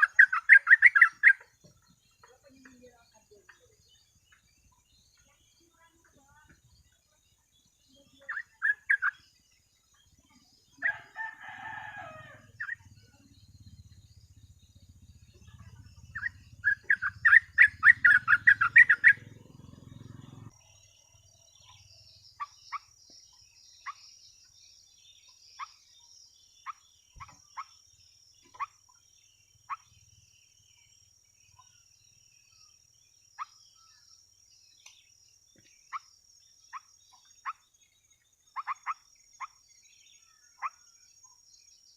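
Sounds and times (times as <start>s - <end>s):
bird chattering and chirping: 0.0s - 41.9s
rooster crowing: 10.8s - 12.7s.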